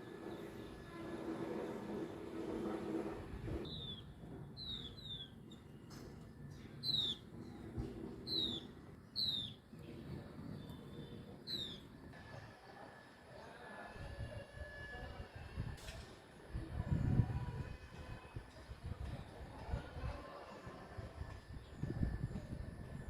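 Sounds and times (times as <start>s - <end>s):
small bird chirping: 3.7s - 5.8s, 6.8s - 7.2s, 8.3s - 9.6s, 10.6s - 11.9s.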